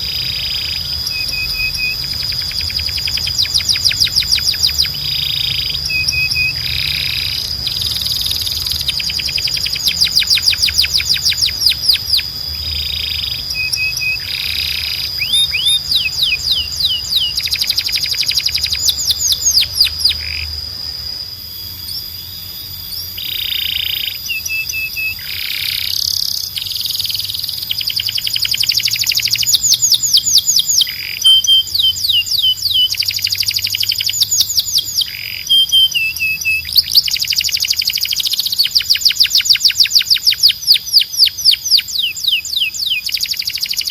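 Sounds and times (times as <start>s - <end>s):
steady high tone: 0.0s - 25.8s
canary singing trills: 0.0s - 43.9s.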